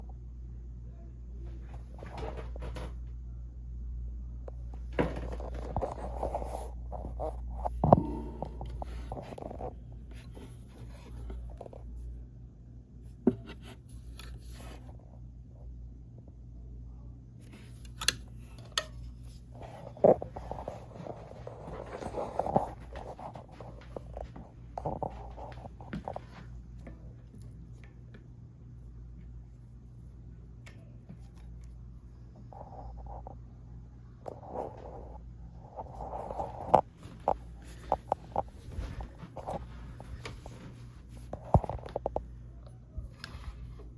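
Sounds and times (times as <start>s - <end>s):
low steady hum: 0.0s - 43.9s
scraping and rustling handling noise: 4.7s - 12.2s, 17.4s - 28.2s
table fan motor humming: 5.7s - 12.0s
sharp knock: 7.8s - 9.0s.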